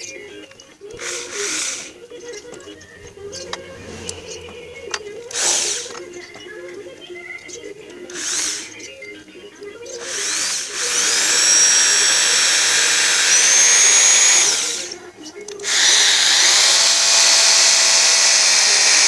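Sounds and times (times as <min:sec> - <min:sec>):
power tool motor whine: 0:00.9 - 0:02.0, 0:02.9 - 0:06.1, 0:08.1 - 0:08.8, 0:10.0 - 0:15.0, 0:15.6 - 0:19.0.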